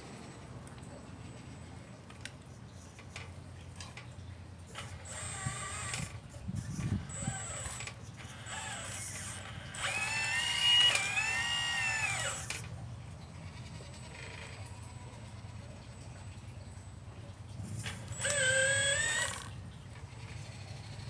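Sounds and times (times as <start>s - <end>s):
electric hydraulic pump whining: 4.7s - 12.8s, 17.6s - 20.3s.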